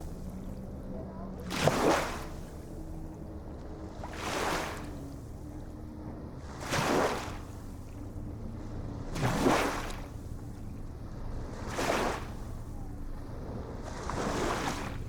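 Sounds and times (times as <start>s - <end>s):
small waves washing in: 13.8s - 15.0s.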